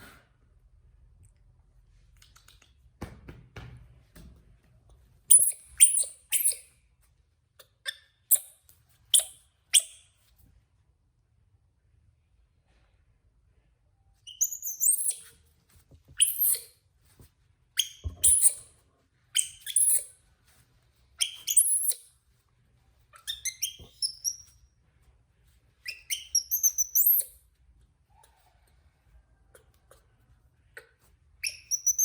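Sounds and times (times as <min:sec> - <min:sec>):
baby monkey chirping squeals: 0:05.3 - 0:06.7, 0:14.3 - 0:15.3, 0:16.2 - 0:16.7, 0:17.8 - 0:18.7, 0:19.4 - 0:20.1, 0:21.2 - 0:22.0, 0:23.2 - 0:24.6, 0:25.8 - 0:27.4, 0:31.4 - 0:32.0.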